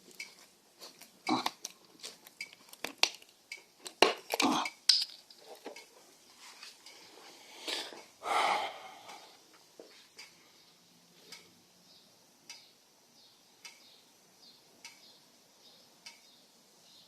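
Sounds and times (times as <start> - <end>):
short breathy rush: 7.0 - 9.4
faint sharp ticks: 13.6 - 14.0.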